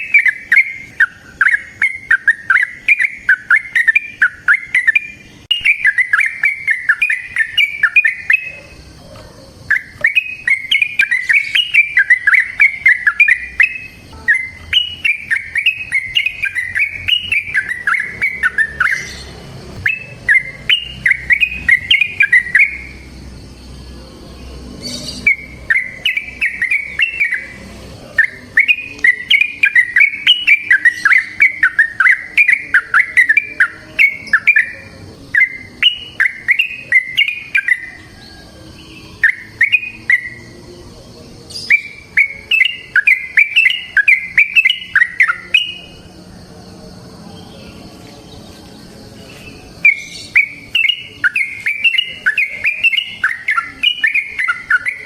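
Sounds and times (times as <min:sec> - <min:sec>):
bulbul singing rapid notes: 0:00.0 - 0:46.5, 0:48.3 - 0:55.0.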